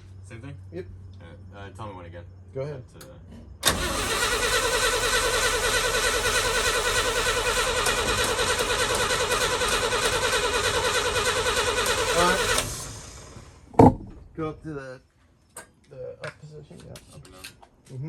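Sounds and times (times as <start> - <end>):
engine cranking by starter motor: 3.6 - 14.4.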